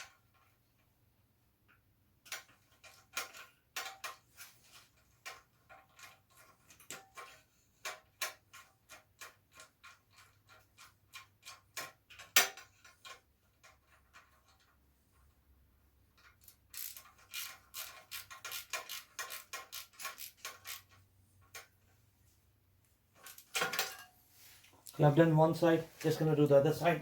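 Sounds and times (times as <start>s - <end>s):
socket ratchet clicking: 16.3s - 21.0s.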